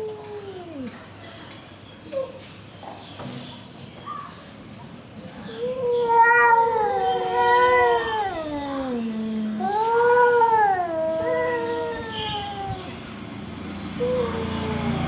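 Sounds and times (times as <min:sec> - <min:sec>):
cat low growl-like moan: 0:00.0 - 0:01.0, 0:05.5 - 0:13.1, 0:14.0 - 0:15.0
cats yowling: 0:00.0 - 0:01.2, 0:05.5 - 0:13.2, 0:14.0 - 0:15.0.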